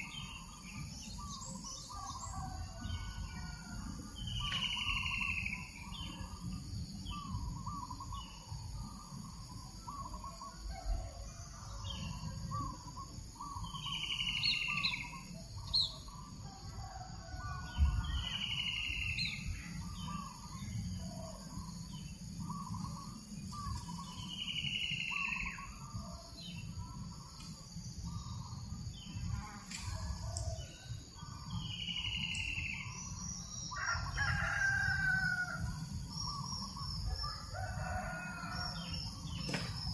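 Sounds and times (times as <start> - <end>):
birds chirping: 17.8 - 29.4.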